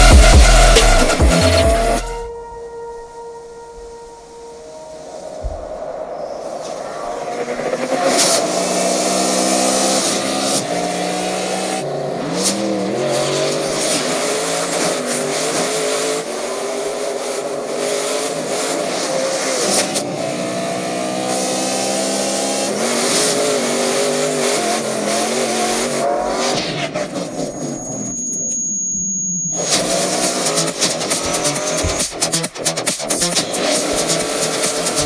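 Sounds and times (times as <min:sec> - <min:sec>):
car engine revving: 0:00.0 - 0:02.2, 0:05.2 - 0:28.2, 0:29.6 - 0:35.0
tyre and road noise: 0:29.7 - 0:35.0.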